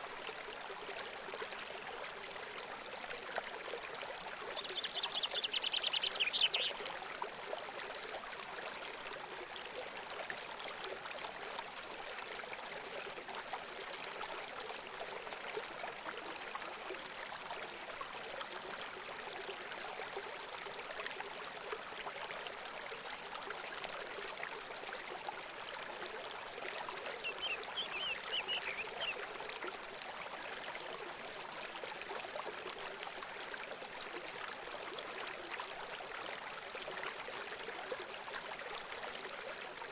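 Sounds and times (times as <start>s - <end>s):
bird chirps: 4.6s - 6.7s, 27.2s - 29.1s
water trickling: 24.1s - 39.9s.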